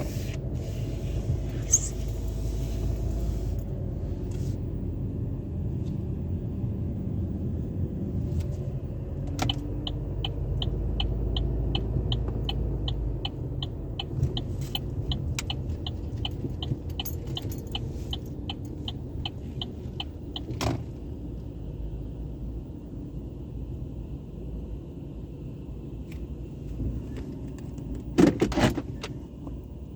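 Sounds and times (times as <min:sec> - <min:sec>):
vehicle rumble in car wash: 0:00.0 - 0:29.9
light even ticking: 0:09.5 - 0:20.5.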